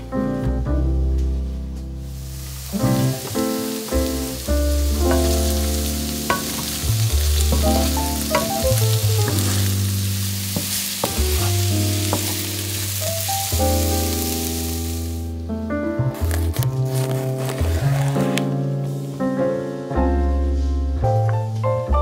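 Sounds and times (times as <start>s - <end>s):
background music: 0.0s - 22.0s
potatoes sizzling in oil: 2.0s - 15.4s
wooden spatula scraping pan: 4.9s - 13.0s, 16.2s - 18.5s.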